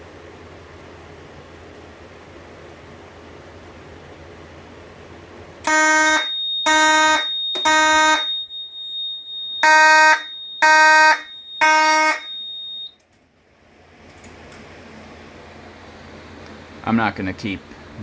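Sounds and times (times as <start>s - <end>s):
fire alarm horn blasts: 5.6s - 13.0s
steady high-pitched beep: 5.7s - 12.9s.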